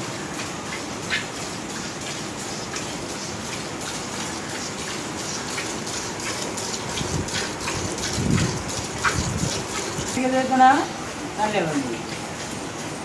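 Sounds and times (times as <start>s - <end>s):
milk squirting into a pail: 2.0s - 10.2s.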